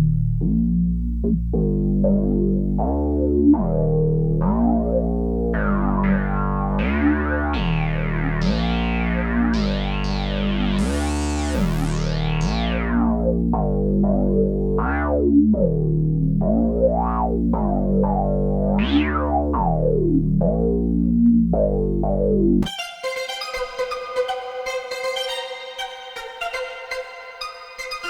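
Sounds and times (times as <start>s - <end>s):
synthesizer bass line: 0.0s - 28.0s.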